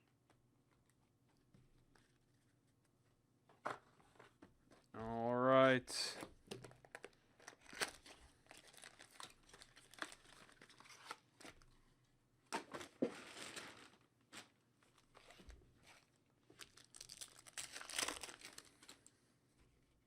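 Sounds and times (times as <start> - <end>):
wrapper tearing and crinkling: 6.9 - 11.2, 16.6 - 19.1.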